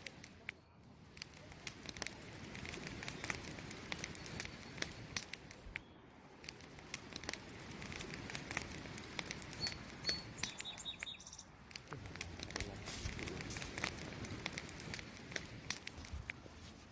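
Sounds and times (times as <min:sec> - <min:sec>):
campfire crackling and popping: 0:00.0 - 0:16.9.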